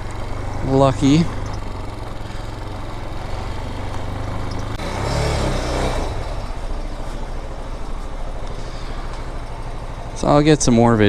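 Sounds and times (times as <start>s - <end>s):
dirt bike engine revving: 0.0s - 6.9s.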